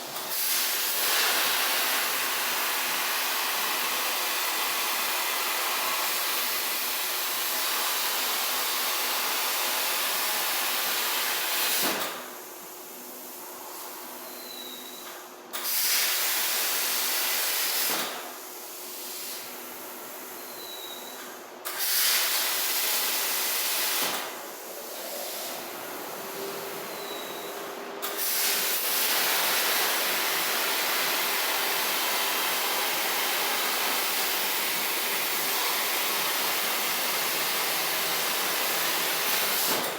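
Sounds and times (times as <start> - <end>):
plasma torch arc hissing: 0.2 - 3.4, 15.6 - 18.0, 21.7 - 25.8, 28.0 - 39.9.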